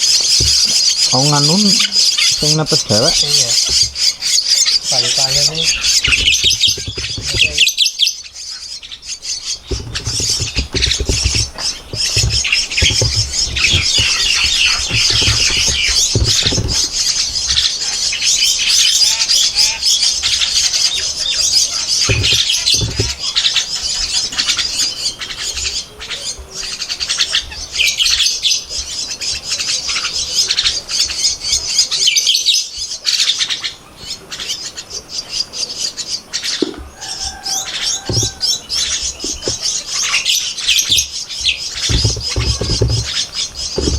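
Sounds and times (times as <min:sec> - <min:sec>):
low bumping and rustling: 0:00.0 - 0:07.8, 0:09.0 - 0:25.7, 0:36.6 - 0:43.9
nestlings shrill begging calls: 0:00.0 - 0:43.9.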